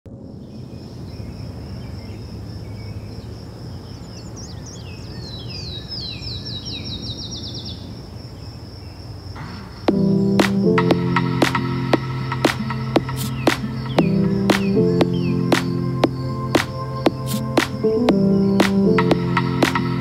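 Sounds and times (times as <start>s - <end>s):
low wind noise: 0.1s - 20.0s
songbird chirping: 0.1s - 20.0s
music: 9.9s - 20.0s.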